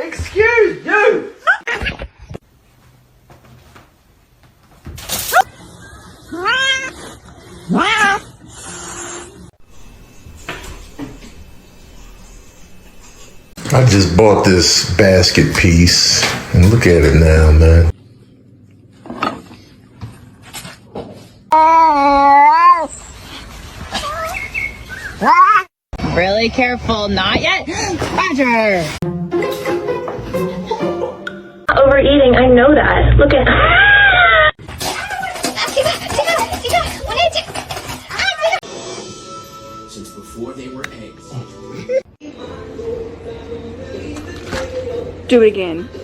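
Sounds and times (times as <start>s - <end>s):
cat meowing: 6.3s - 7.0s, 7.6s - 8.3s.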